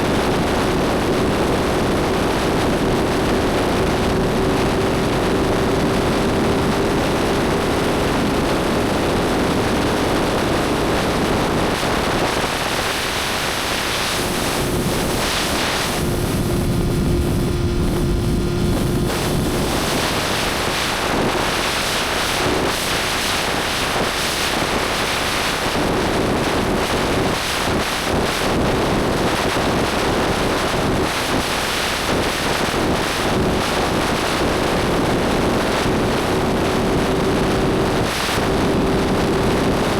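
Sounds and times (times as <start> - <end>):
wind rush on microphone: 0.0 - 39.9
motorcycle engine cruising: 14.1 - 21.1.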